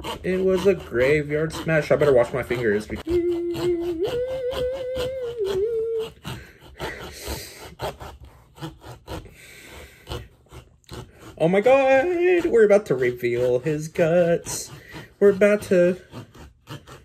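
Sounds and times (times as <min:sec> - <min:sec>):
knife sawing into pumpkin: 0:00.0 - 0:17.0
man humming: 0:00.4 - 0:07.6, 0:11.4 - 0:16.4.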